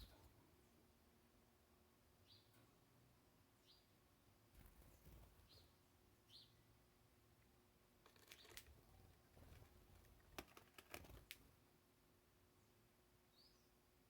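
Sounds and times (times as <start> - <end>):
faint bird chirps: 2.2 - 2.8, 3.6 - 4.0, 4.6 - 6.7, 12.6 - 13.8.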